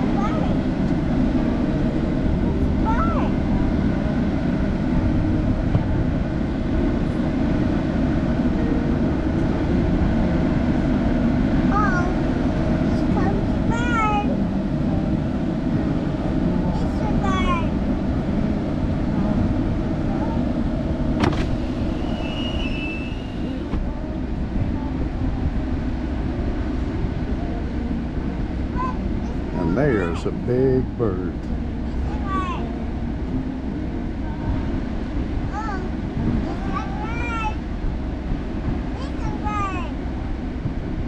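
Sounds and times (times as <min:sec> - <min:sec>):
vehicle engine rumbling: 0:00.0 - 0:41.0
brief high squeak: 0:21.5 - 0:23.6.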